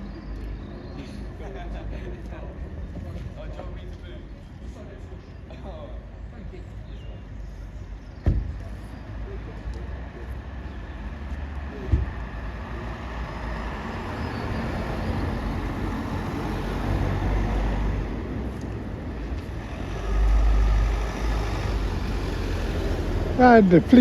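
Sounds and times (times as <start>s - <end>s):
vehicle engine: 8.5s - 24.0s.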